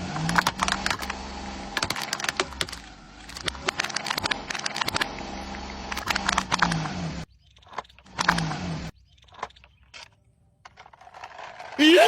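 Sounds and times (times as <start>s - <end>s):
quick clicks and rattles: 0.2s - 1.2s, 1.8s - 5.1s.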